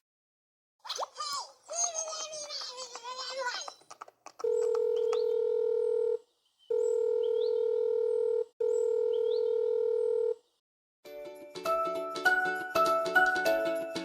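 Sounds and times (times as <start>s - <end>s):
telephone beeps: 4.4s - 10.4s.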